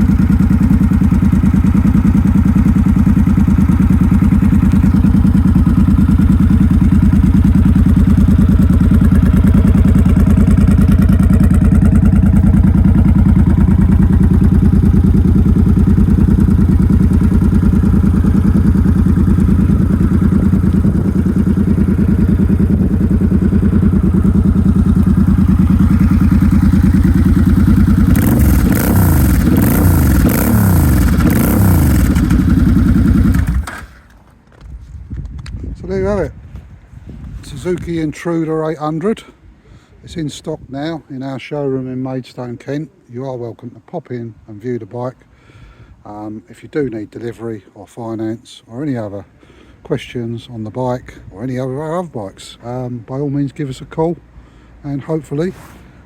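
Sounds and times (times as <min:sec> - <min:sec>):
motorcycle engine idling and revving: 0:00.0 - 0:34.4.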